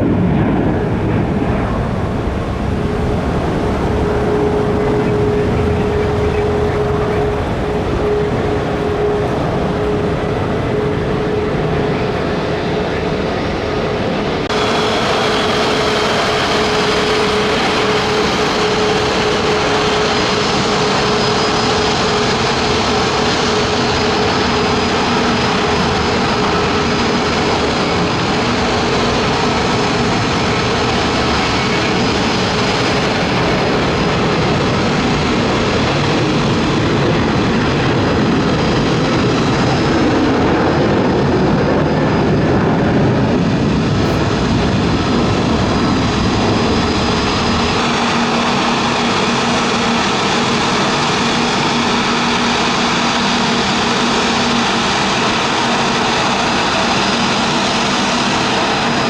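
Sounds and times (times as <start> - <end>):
jet engines idling: 0.0 - 59.0.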